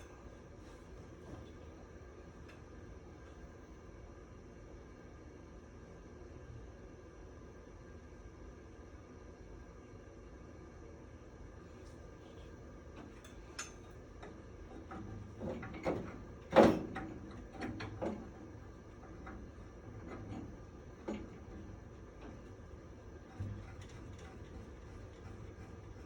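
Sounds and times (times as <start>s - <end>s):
parts and tools clattering: 14.7s - 26.0s.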